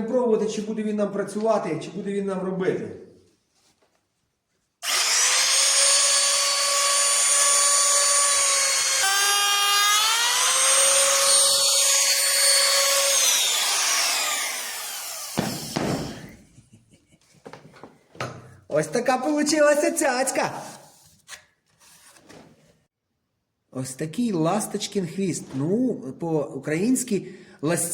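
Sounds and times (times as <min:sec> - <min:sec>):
router high whine: 0:04.8 - 0:15.8.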